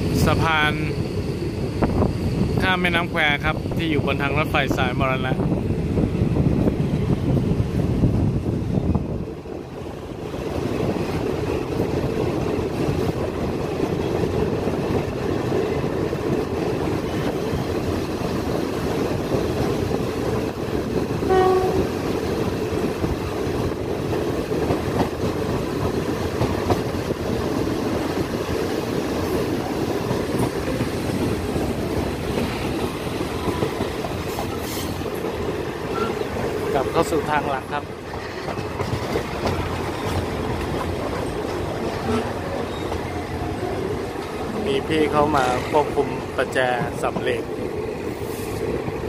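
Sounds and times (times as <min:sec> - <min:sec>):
train wheels rumbling on rails: 0:00.0 - 0:49.0
train horn blast: 0:21.3 - 0:21.9.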